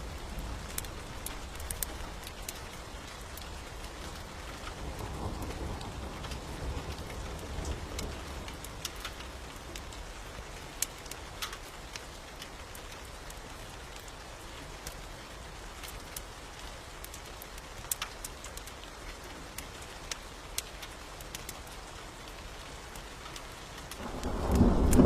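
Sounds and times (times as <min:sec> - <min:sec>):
steady rain: 0:00.0 - 0:25.0
distant thunder rumble: 0:24.0 - 0:25.0.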